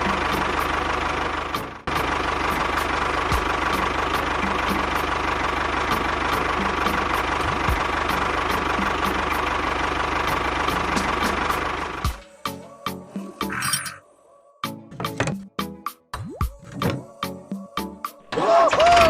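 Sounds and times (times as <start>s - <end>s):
small engine idling: 0.0s - 13.7s
engine ticking knock: 1.9s - 9.4s.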